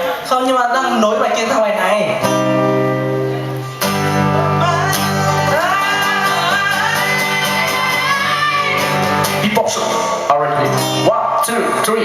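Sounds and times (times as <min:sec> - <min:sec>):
acoustic guitar chords: 0:01.9 - 0:12.0
person singing: 0:03.9 - 0:09.8.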